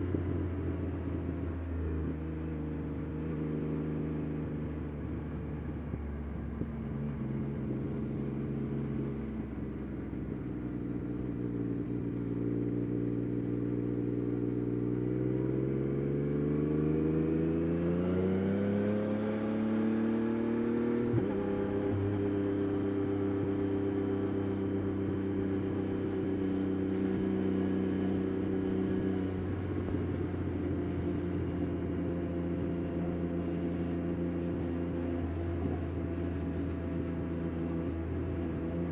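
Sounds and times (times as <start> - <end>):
motorcycle engine revving: 14.7 - 38.9.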